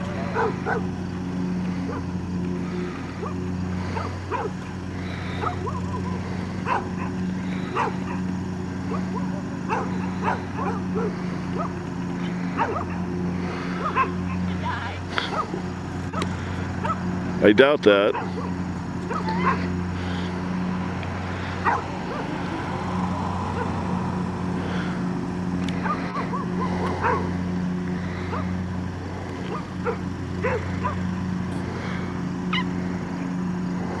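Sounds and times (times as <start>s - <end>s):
steady low hum: 0.0s - 34.0s
dog yipping: 0.2s - 0.9s, 4.0s - 4.5s, 6.7s - 8.2s, 8.9s - 11.7s, 12.6s - 13.0s, 13.8s - 14.2s, 15.2s - 16.2s, 19.1s - 19.7s, 21.6s - 22.3s, 25.8s - 27.3s, 29.5s - 31.0s.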